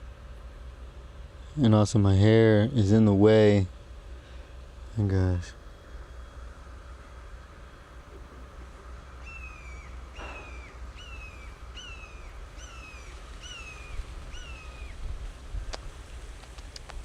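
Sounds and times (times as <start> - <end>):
steady low rumble: 0.0 - 17.0
bird calling: 5.5 - 15.9.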